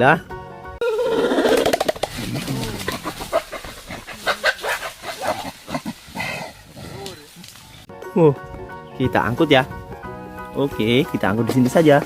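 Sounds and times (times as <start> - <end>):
gorilla high cry: 0.8 - 7.1
gorilla growling and grunting: 0.8 - 7.4.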